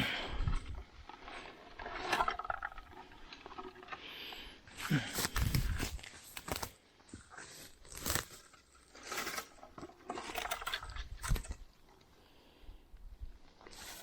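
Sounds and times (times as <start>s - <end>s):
crunching and rustling undergrowth: 4.7s - 11.7s
twigs snapping and scraping: 4.8s - 11.6s.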